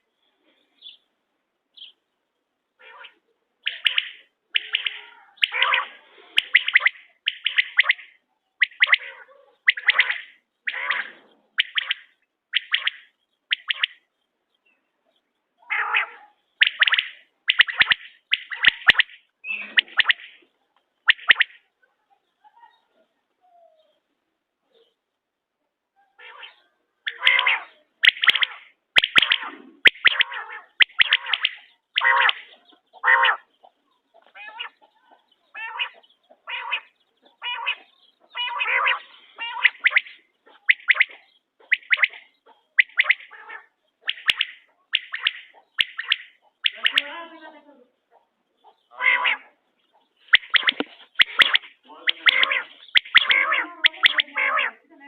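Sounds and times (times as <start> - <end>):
quail calling: 2.8 - 14.1, 15.6 - 21.7, 26.0 - 55.0
rough noisy bird call: 26.1 - 47.1, 48.6 - 54.8
sharp clicks: 50.3 - 54.2.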